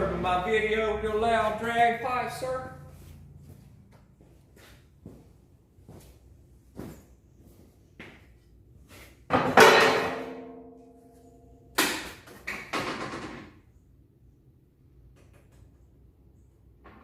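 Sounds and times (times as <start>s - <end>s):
ringing metallic strike: 9.6s - 11.7s.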